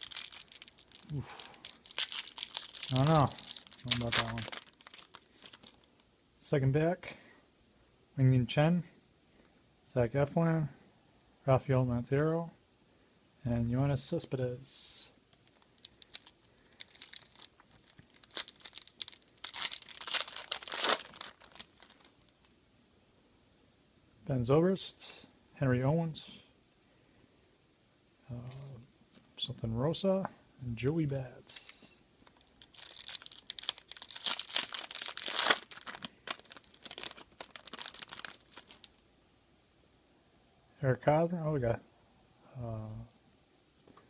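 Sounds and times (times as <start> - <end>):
foil wrapper crinkling and tearing: 0.0 - 6.1, 15.4 - 22.5, 31.6 - 39.0.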